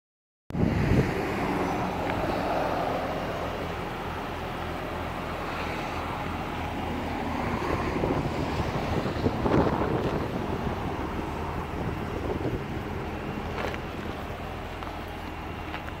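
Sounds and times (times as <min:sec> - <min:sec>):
wind on microphone: 0:00.5 - 0:02.4, 0:07.0 - 0:13.6
vehicle engine running: 0:00.6 - 0:16.0.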